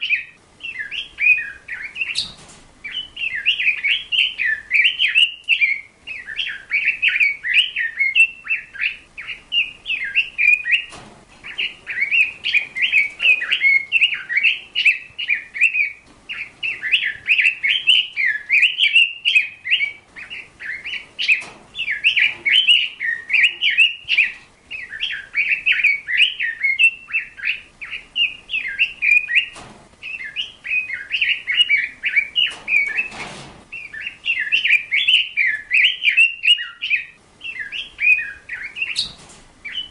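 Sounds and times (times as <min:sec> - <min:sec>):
bird chirping and twittering: 0:00.0 - 0:39.9.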